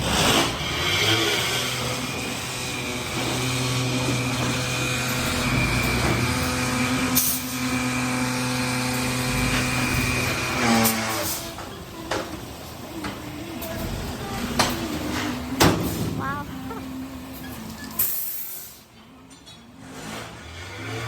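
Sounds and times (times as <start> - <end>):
truck engine running: 0.0 - 21.0
hiss of released air: 18.0 - 18.9.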